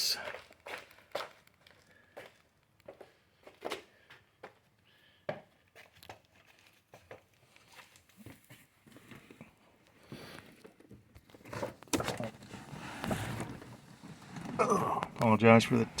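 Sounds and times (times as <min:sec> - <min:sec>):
rustling and handling noises: 0:05.5 - 0:16.0.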